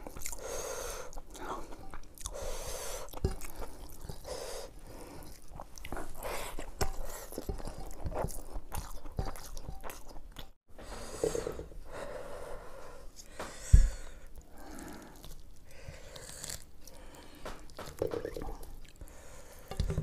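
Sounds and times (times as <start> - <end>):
man chewing and lip smacking: 0.0 - 0.4, 1.1 - 2.4, 5.2 - 10.6, 14.3 - 19.0.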